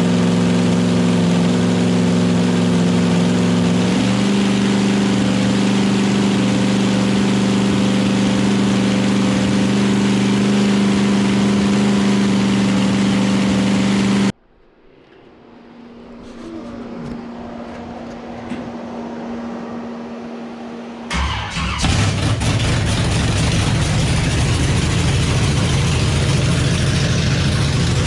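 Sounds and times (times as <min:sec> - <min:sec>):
car engine running: 0:00.0 - 0:14.4, 0:16.0 - 0:28.0
faint hum: 0:14.3 - 0:21.8.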